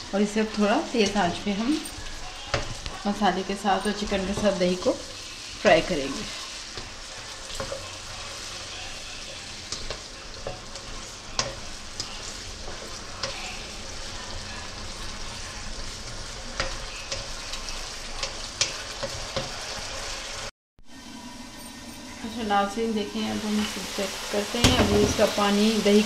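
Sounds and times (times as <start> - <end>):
chicken sizzling in a wok: 0.0 - 26.0
spatula scraping a pan: 0.4 - 20.5
spatula tapping a pan: 2.4 - 3.0, 9.3 - 13.6, 16.5 - 17.6.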